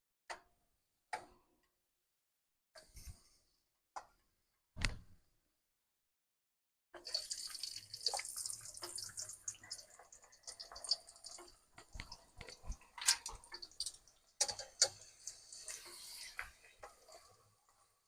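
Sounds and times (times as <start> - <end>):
hot oil sizzling and popping: 7.0 - 18.0.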